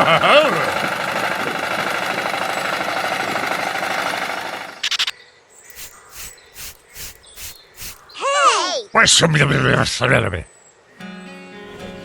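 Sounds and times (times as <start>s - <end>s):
faint short repeating sounds: 4.8s - 5.1s, 5.7s - 8.1s.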